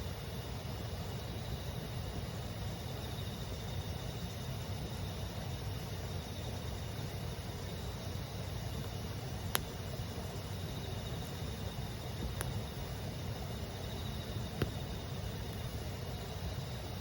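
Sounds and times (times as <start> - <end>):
insects chirping: 0.0 - 17.0
campfire wood cracking: 6.9 - 16.3.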